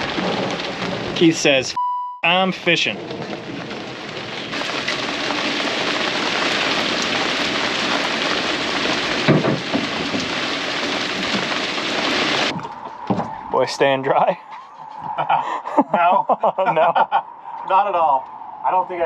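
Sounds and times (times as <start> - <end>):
heavy rain on metal boat: 0.0 - 13.3.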